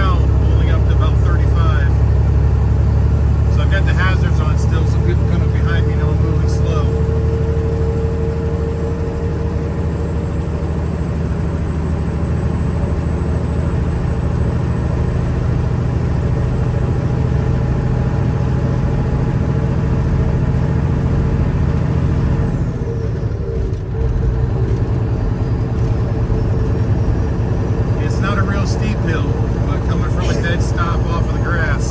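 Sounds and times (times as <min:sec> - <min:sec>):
steady whine: 0:00.0 - 0:11.8, 0:24.8 - 0:31.9
road noise: 0:00.0 - 0:31.9
truck diesel engine running: 0:00.0 - 0:31.9.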